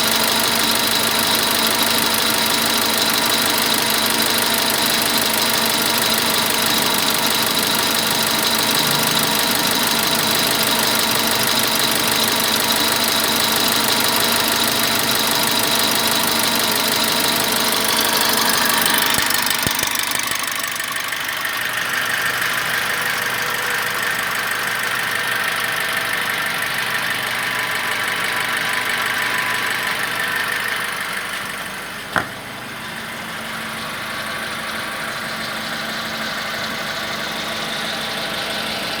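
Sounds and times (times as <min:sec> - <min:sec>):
car engine idling rough: 0:00.0 - 0:39.0
sharp click: 0:18.0 - 0:20.5, 0:32.1 - 0:32.4.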